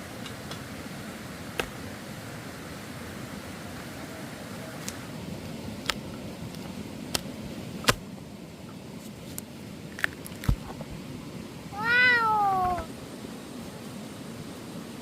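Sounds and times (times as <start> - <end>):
cat meowing: 11.7 - 12.9.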